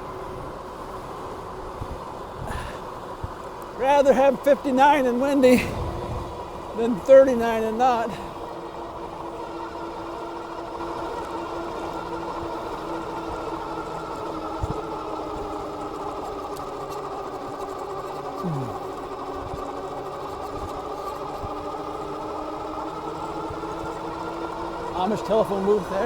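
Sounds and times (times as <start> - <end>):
electric motor whining: 1.2 - 26.0.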